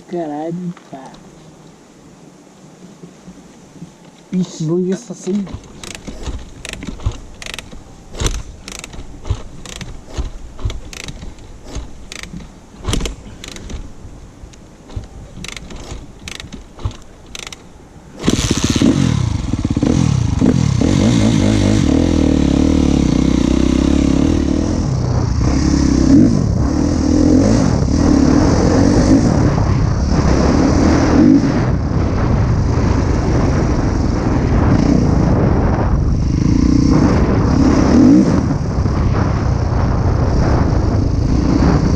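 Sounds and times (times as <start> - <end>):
clicks and knocks: 5.4 - 13.9
motocross bike engine revving: 5.5 - 13.9, 18.2 - 41.9.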